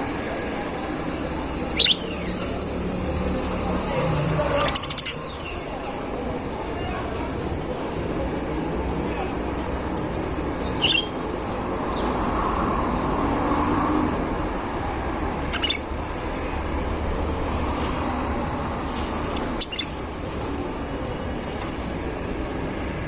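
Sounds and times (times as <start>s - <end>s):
budgerigars chirping: 0.0s - 5.7s
steady rumbling background noise: 0.0s - 23.0s.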